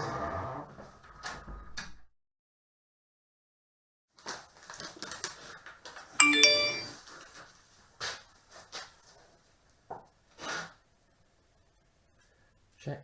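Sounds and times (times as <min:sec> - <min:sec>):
two-note ding-dong chime: 0:06.2 - 0:07.0.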